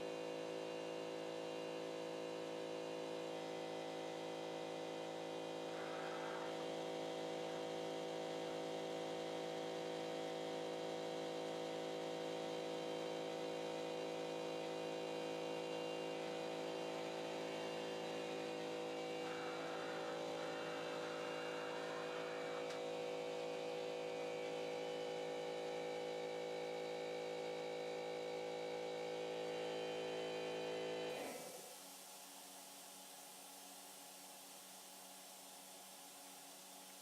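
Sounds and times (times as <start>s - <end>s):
stepper motors humming: 16.1s - 23.5s.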